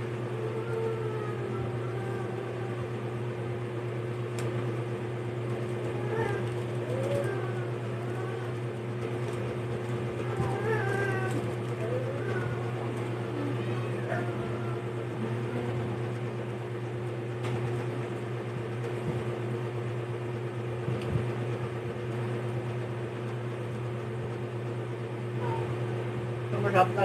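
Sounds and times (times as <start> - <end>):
low electrical hum: 0.0 - 27.0
cat meowing faintly: 10.2 - 15.8, 25.4 - 25.8.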